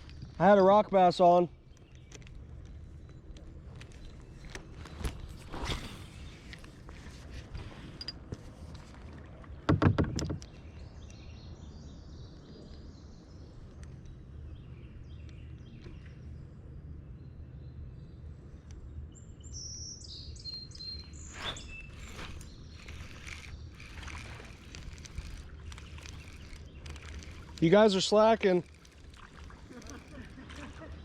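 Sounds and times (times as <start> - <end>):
wind: 0.0 - 31.0
low rumble of water: 8.2 - 9.7, 21.8 - 31.0
birds chirping and singing: 19.5 - 31.0.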